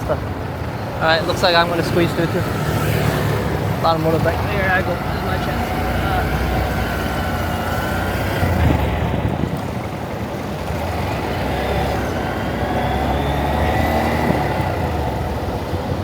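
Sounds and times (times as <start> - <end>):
surrounding traffic: 0.0 - 16.0
small motorbike engine running: 0.1 - 16.0
wind noise on microphone: 6.3 - 16.0.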